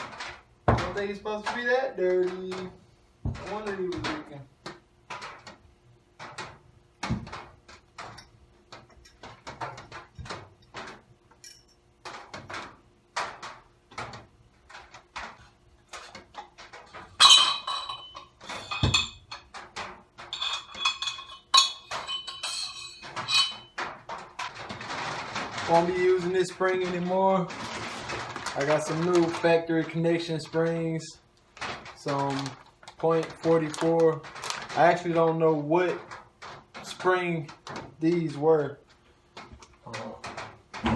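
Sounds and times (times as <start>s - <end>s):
metal parts knocking and clicking: 0.0s - 30.9s, 31.6s - 40.9s
ringing metal clinks: 17.2s - 19.2s.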